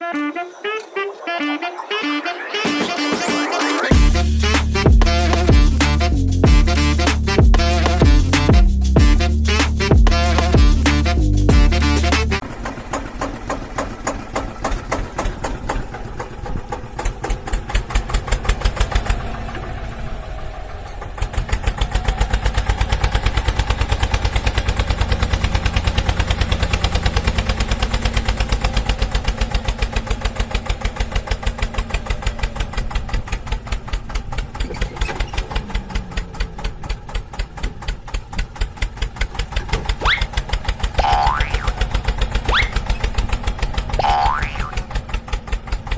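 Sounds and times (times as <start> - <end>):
engine chugging: 0.0 - 45.9.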